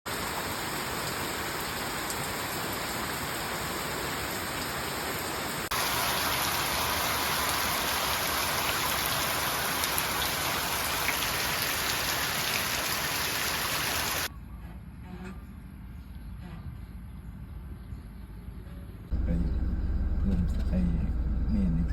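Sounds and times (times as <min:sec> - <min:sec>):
heavy rain falling: 0:00.1 - 0:14.3.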